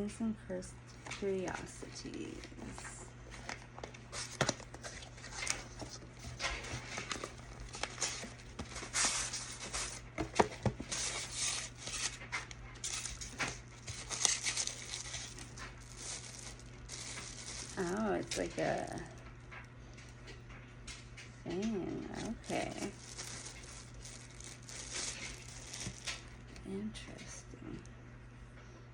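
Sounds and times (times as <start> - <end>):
paper packaging rustling: 0.9 - 21.2, 21.9 - 26.6.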